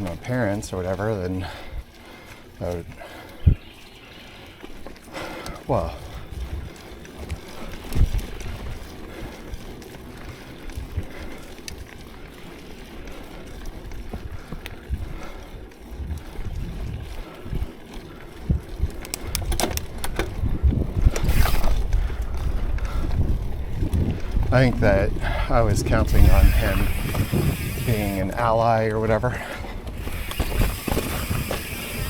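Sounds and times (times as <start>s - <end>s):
bike tyres rumbling on dirt: 0.0s - 32.0s
wind on microphone: 5.8s - 8.9s, 13.9s - 17.7s, 18.4s - 32.0s
sharp rattling clicks: 18.9s - 20.4s, 21.0s - 22.9s, 25.9s - 29.0s, 29.8s - 32.0s.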